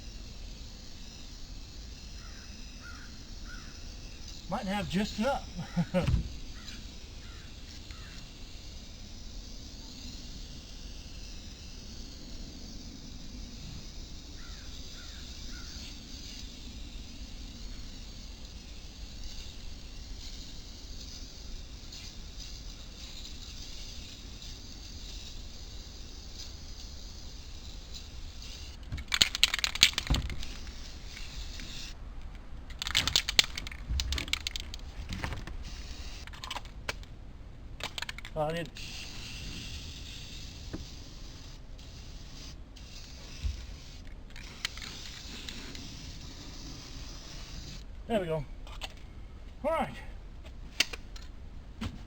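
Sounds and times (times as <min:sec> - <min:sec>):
outdoor background noise: 0:00.0 - 0:52.0
bird cawing: 0:02.1 - 0:03.8, 0:05.6 - 0:08.3, 0:14.3 - 0:15.9
tape ripping off roll: 0:28.8 - 0:31.3.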